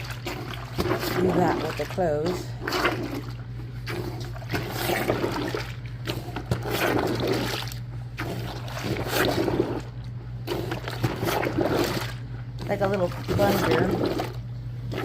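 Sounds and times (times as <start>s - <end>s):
water sloshing in a bucket: 0.0s - 15.0s.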